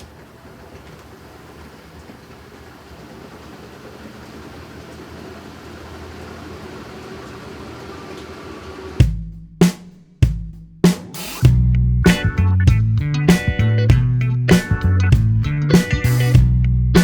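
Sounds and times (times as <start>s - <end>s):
washing machine churning hum: 0.0s - 9.1s
heavy drum hits: 9.0s - 16.6s
background music: 11.3s - 17.0s.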